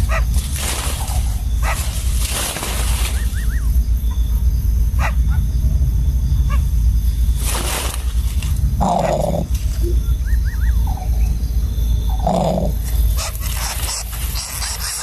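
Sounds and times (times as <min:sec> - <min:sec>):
rustling: 0:00.0 - 0:03.5, 0:07.3 - 0:09.8
deep rumble: 0:00.0 - 0:15.0.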